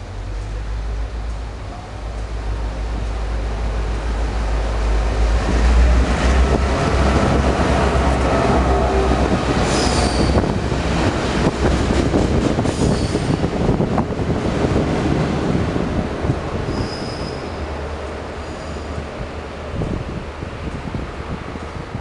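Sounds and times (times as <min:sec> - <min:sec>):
freight train rumbling: 0:00.0 - 0:22.0
train wheels squealing: 0:09.6 - 0:10.5, 0:12.7 - 0:13.4, 0:16.7 - 0:17.7, 0:18.4 - 0:19.0.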